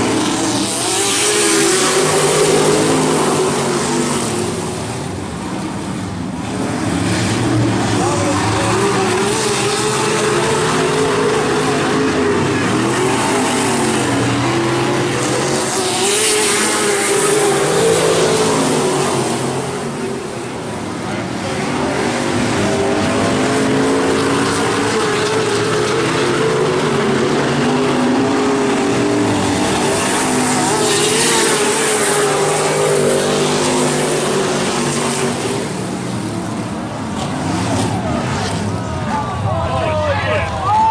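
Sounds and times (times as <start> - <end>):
race truck engines racing: 0.0 - 40.9.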